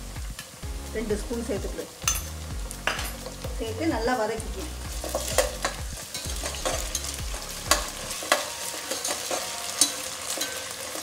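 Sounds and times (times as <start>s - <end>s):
onions sizzling in hot oil: 0.0s - 11.0s
steel ladle scraping and clinking pot: 5.0s - 11.0s.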